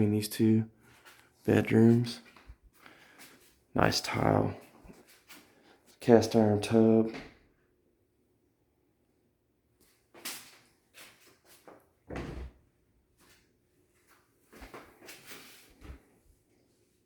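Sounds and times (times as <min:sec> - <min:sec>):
knocks and bumps in a room: 0:12.1 - 0:12.6.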